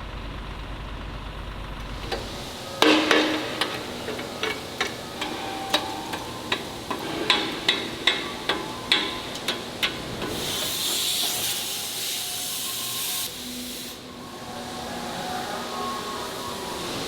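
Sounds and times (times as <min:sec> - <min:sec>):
low machine hum: 0:00.0 - 0:13.0
sharp knocks and clanks: 0:01.8 - 0:11.6.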